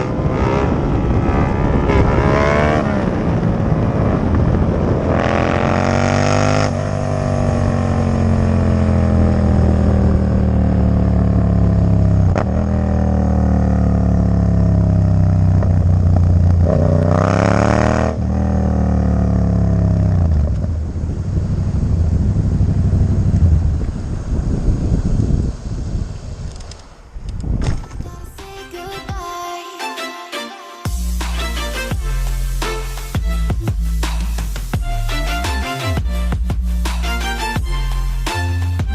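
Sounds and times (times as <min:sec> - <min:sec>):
motorcycle engine revving loud: 0:00.0 - 0:26.0.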